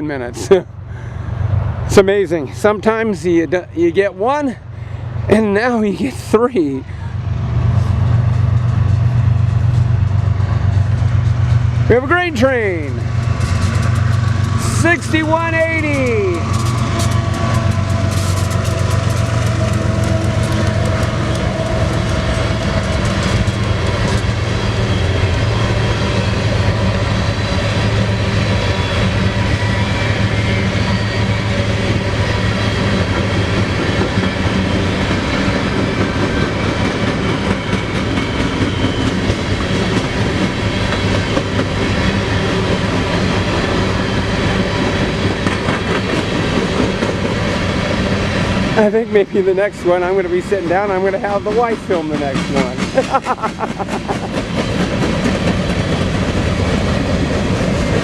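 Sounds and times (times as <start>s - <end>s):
diesel locomotive drone: 0.0s - 58.0s
train cars rumbling past: 0.0s - 58.0s
wheels clicking over rail joints: 12.6s - 14.8s, 15.9s - 24.9s, 51.0s - 58.0s.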